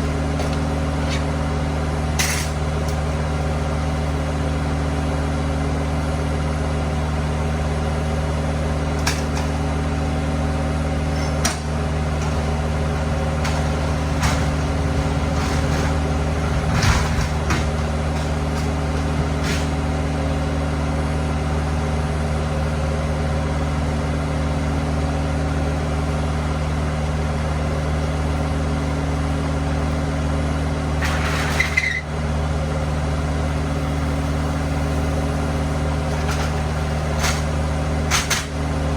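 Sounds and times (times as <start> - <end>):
truck idling hum: 0.0 - 38.9
short knocks and clatters: 13.4 - 19.9.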